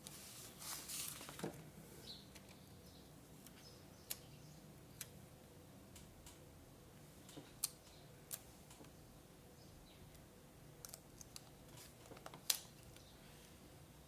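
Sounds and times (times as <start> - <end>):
paper being handled: 0.1 - 1.5.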